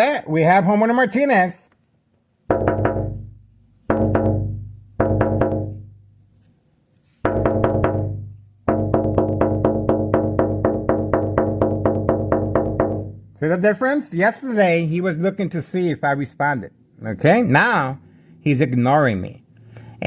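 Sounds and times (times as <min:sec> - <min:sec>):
fast repeated hits: 0:02.5 - 0:05.9, 0:07.2 - 0:13.4.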